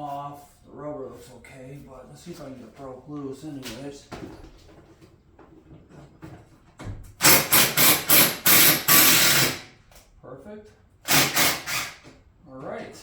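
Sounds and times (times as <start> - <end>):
impact wrench bursts: 7.2 - 9.8, 11.0 - 12.1.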